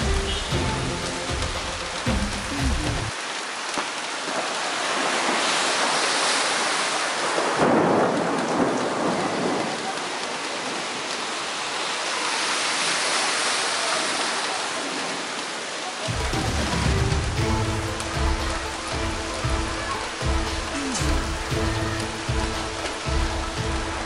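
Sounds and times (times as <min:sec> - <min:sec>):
heavy rain pouring: 0:00.0 - 0:24.0
thunder rumbling: 0:07.4 - 0:11.1, 0:16.1 - 0:24.0.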